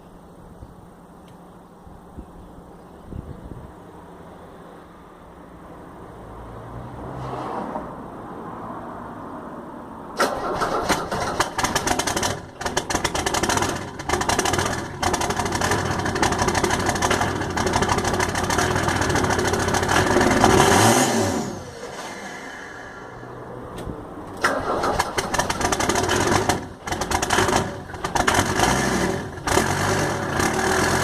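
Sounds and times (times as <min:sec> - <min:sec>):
diesel engine running rough: 0:10.2 - 0:23.6, 0:24.3 - 0:31.0.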